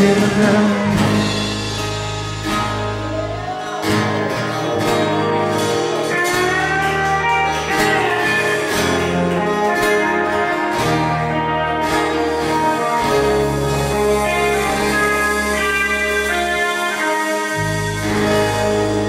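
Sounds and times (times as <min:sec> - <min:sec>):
country band playing: 0:00.0 - 0:19.0
guitar gliding held notes: 0:00.0 - 0:19.0.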